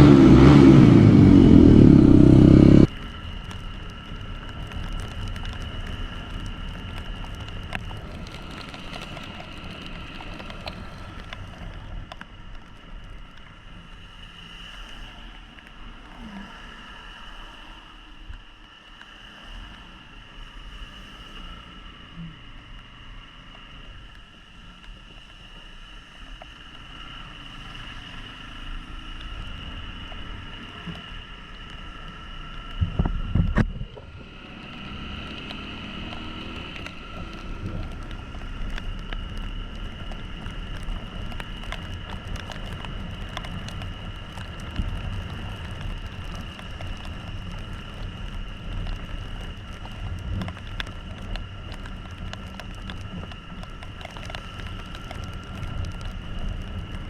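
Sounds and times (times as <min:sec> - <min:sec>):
motorcycle engine running: 0:00.0 - 0:11.2, 0:28.2 - 0:50.4
road and wind noise: 0:00.0 - 0:57.0
small ticks: 0:34.6 - 0:57.0.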